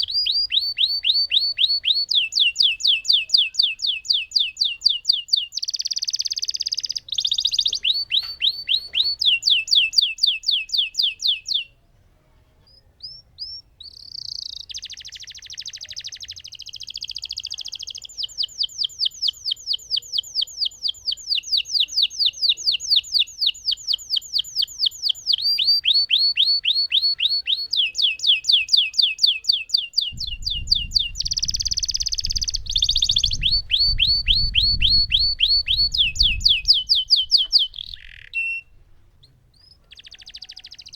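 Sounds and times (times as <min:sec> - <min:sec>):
canary singing rolled trills: 0:00.0 - 0:11.8, 0:12.5 - 0:40.9
low rumble: 0:30.1 - 0:38.0.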